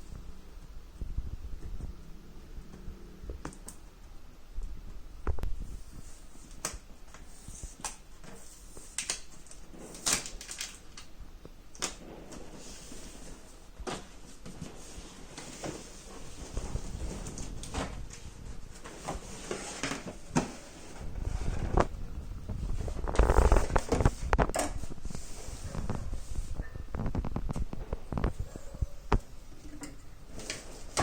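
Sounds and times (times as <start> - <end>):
packaging rustling: 6.2 - 11.1, 15.2 - 25.0.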